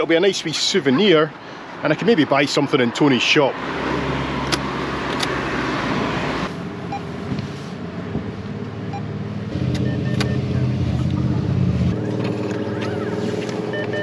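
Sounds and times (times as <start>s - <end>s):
street noise: 0.0s - 14.0s
vehicle engine running: 6.8s - 14.0s.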